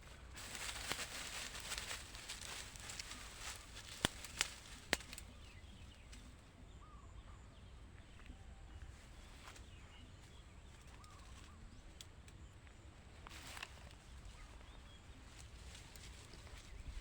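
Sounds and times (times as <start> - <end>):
faint bird chirps: 2.3 - 17.0.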